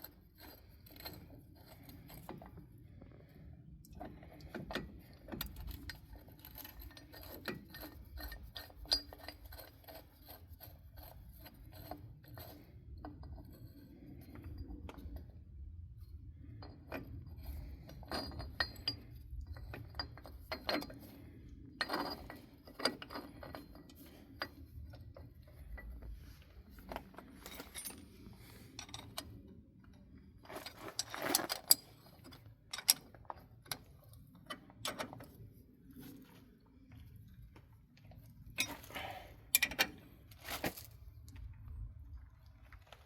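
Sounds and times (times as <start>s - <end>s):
metal tools clinking: 26.8s - 29.4s, 38.6s - 41.0s.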